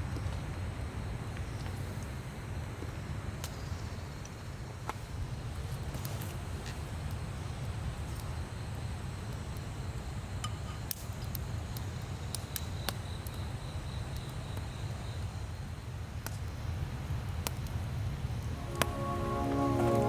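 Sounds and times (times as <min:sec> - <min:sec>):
campfire crackling and popping: 0:10.9 - 0:14.6, 0:15.6 - 0:20.0.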